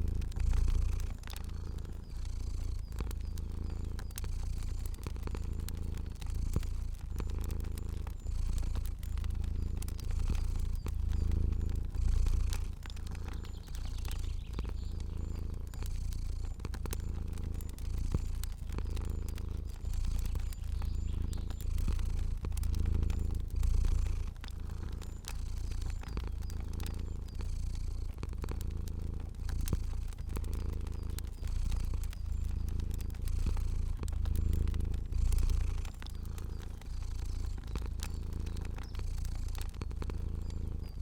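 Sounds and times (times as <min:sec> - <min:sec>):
cat purring: 0:00.0 - 0:41.0
fire crackling: 0:00.0 - 0:41.0.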